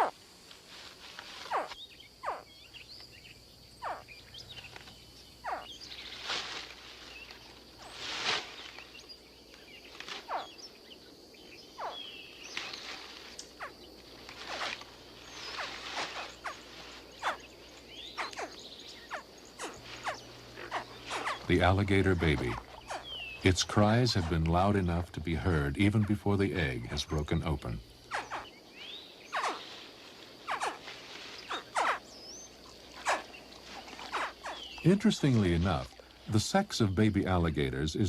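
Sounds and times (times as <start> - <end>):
hatchling alligators crying: 18.1 - 24.4.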